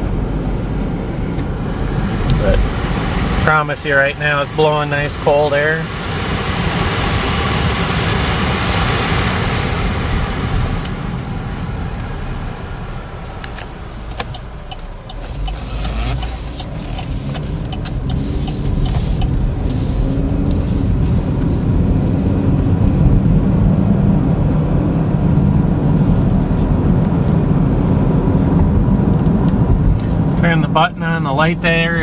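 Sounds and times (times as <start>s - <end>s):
air conditioning blower rushing: 0.0s - 22.2s
car engine humming: 0.0s - 25.1s
road rumble: 0.0s - 32.0s
clicks: 10.5s - 19.9s.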